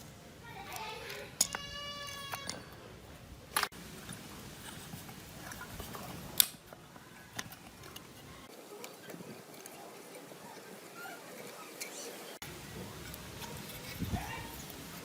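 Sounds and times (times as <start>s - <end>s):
light scraping of parts: 0.6s - 10.2s, 12.8s - 15.0s
small tools clicking: 0.7s - 2.8s.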